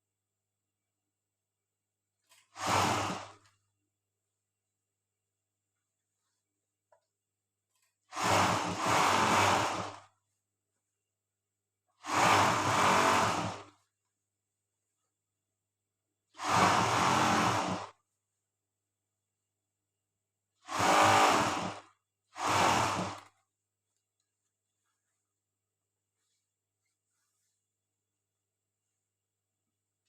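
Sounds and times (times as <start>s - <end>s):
overlock sewing machine running: 2.3s - 3.5s, 8.1s - 10.1s, 12.0s - 13.8s, 16.3s - 18.0s, 20.6s - 23.4s.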